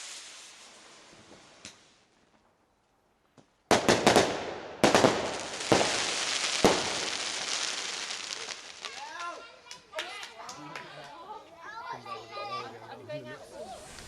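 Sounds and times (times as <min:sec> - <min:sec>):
firework bangs: 0:00.0 - 0:02.0, 0:03.7 - 0:09.2
firework crackling hiss: 0:00.0 - 0:02.3, 0:03.7 - 0:09.5, 0:13.4 - 0:14.0.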